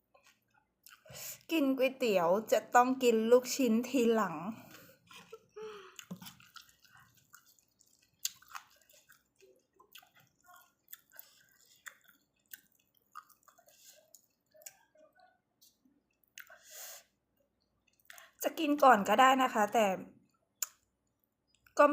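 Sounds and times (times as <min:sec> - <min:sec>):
person chewing noodle soup: 0:00.2 - 0:01.1, 0:04.6 - 0:18.4, 0:20.3 - 0:21.8.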